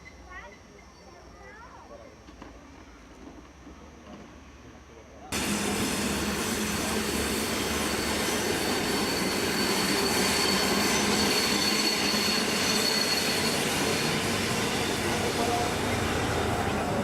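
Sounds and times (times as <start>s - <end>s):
high wheel squeal: 5.4s - 17.0s
train rumbling on rails: 5.4s - 17.0s.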